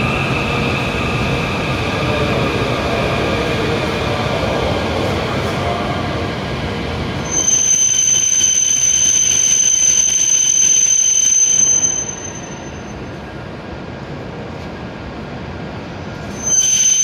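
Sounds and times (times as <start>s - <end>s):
train running noise: 0.0s - 17.0s
train brakes squealing: 7.2s - 13.3s, 16.1s - 17.0s.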